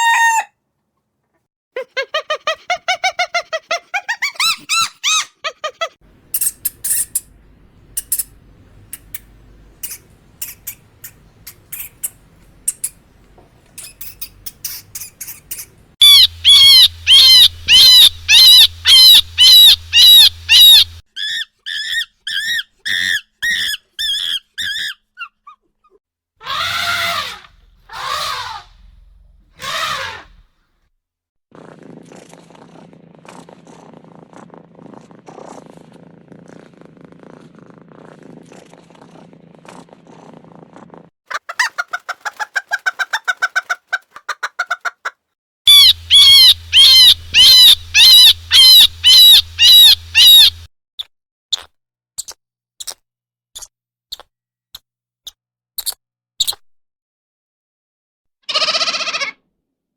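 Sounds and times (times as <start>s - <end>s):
rapid chattering: 6.3s - 7.3s, 8.0s - 13.0s, 13.7s - 21.0s, 45.7s - 50.7s
bird chirps: 6.3s - 21.0s, 45.7s - 50.7s
loud high bird calls: 13.8s - 21.0s, 26.4s - 28.8s, 29.6s - 30.4s, 45.7s - 50.7s.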